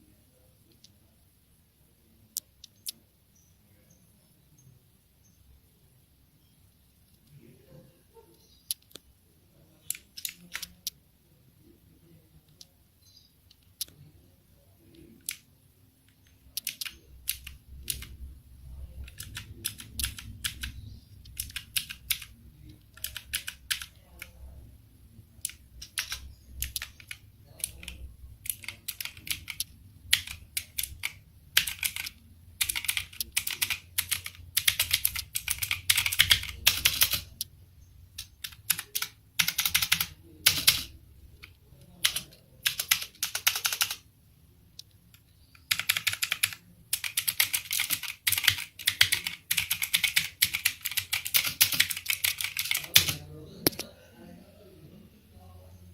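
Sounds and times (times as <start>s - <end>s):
mechanical keyboard typing: 9.8s - 11.0s, 14.9s - 15.5s, 16.1s - 18.2s, 18.8s - 24.4s, 25.4s - 37.5s, 38.2s - 44.0s, 45.1s - 53.9s.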